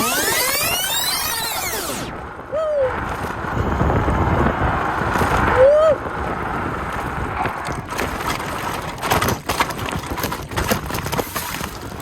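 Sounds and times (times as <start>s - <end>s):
wind rushing over microphone: 0.3s - 12.0s
scooter rattling and clattering: 3.0s - 12.0s.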